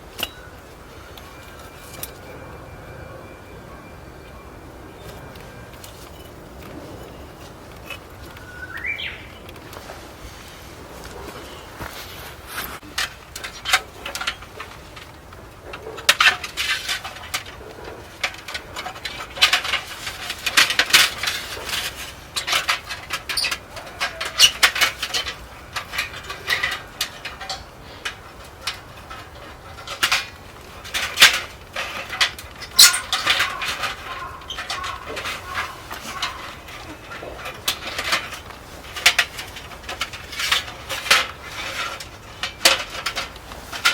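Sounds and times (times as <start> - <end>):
metal cookware clinking: 31.3 - 39.4.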